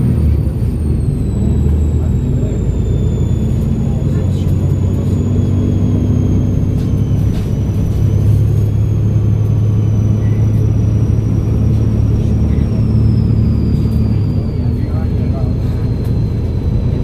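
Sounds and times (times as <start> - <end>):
bus diesel engine humming: 0.0 - 17.0.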